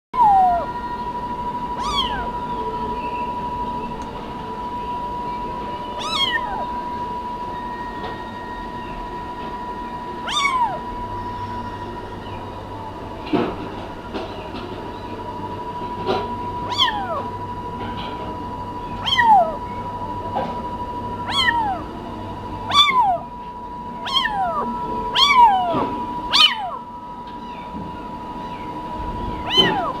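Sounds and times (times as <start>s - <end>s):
kitten meowing: 0.2s - 0.7s, 1.8s - 2.4s, 6.0s - 6.8s, 10.2s - 10.9s, 16.7s - 17.3s, 19.0s - 19.6s, 21.2s - 21.9s, 22.7s - 23.3s, 24.0s - 26.8s, 29.4s - 30.0s.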